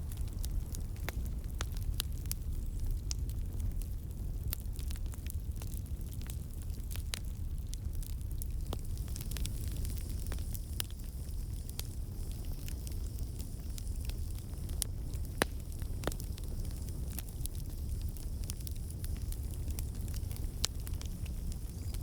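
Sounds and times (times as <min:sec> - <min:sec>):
campfire crackling: 0:00.0 - 0:22.0
sharp pops from burning wood: 0:04.4 - 0:22.0.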